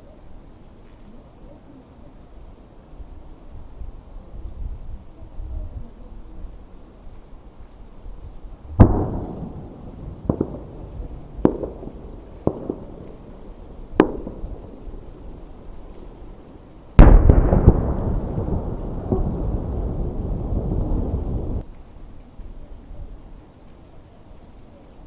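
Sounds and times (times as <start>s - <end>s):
firework shells bursting: 8.8s - 21.6s.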